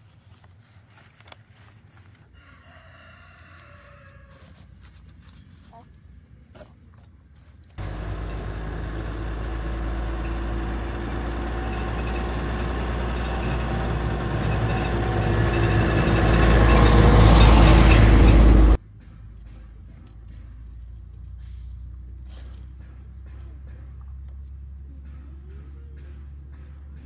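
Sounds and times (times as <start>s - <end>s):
engine running: 7.8s - 27.0s.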